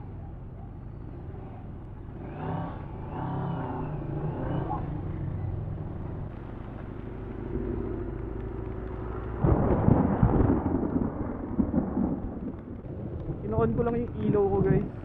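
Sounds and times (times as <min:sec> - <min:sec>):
motorcycle engine humming: 0:00.0 - 0:10.1
wind buffeting microphone: 0:08.1 - 0:15.0.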